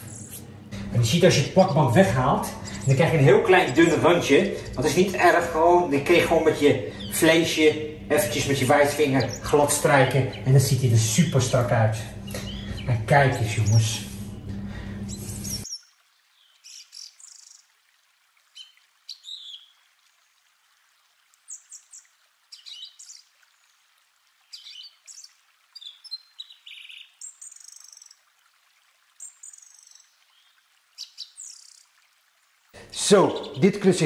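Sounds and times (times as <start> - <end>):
low hum with room noise: 0.0 - 15.7
small birds chirping: 0.0 - 17.7, 18.4 - 19.8, 21.4 - 23.8, 24.4 - 28.3, 29.1 - 32.0, 32.8 - 34.0.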